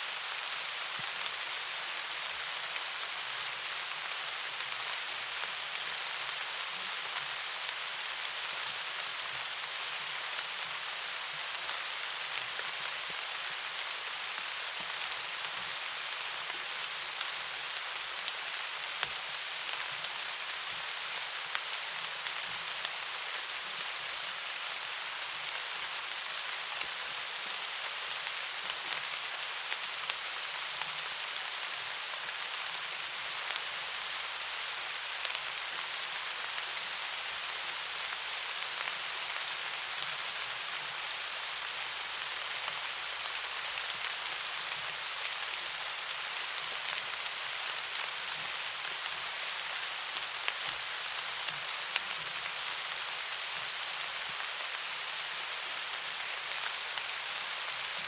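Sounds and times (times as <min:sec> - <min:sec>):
sharp rain ticks: 0:34.3 - 0:40.4.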